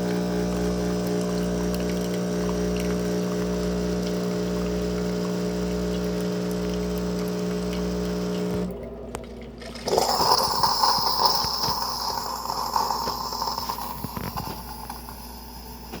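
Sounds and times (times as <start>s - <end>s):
coffee maker pump humming: 0.0s - 16.0s
hissing spluttering steam purge: 10.0s - 16.0s.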